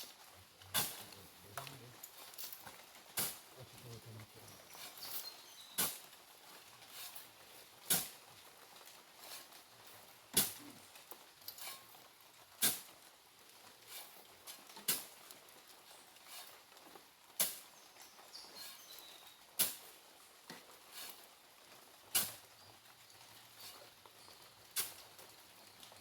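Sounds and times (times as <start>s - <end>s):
shovel scraping into sand: 0.7s - 2.6s, 3.2s - 3.5s, 4.5s - 6.1s, 6.8s - 7.3s, 7.9s - 8.2s, 9.2s - 9.6s, 11.5s - 12.0s, 12.6s - 12.9s, 13.8s - 14.2s, 16.2s - 16.6s, 17.4s - 17.7s, 18.4s - 20.0s, 20.8s - 21.4s, 22.1s - 22.5s, 23.5s - 24.0s, 24.7s - 25.1s.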